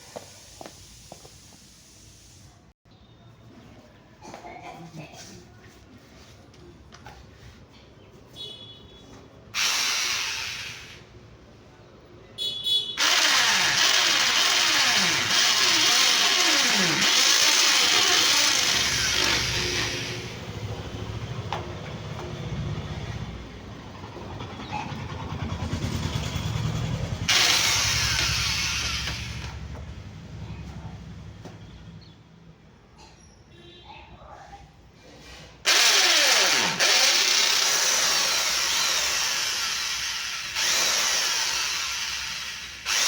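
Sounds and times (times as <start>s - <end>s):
vehicle engine starting and running: 13.0s - 32.1s.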